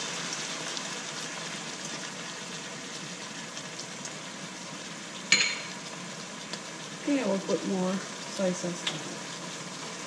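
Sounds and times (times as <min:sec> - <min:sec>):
chicken sizzling in a frying pan: 0:00.0 - 0:10.0.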